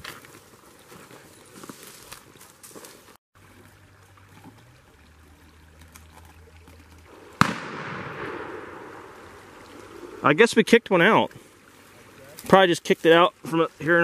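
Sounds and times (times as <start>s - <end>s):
shotgun shot with echo: 7.4s - 9.2s.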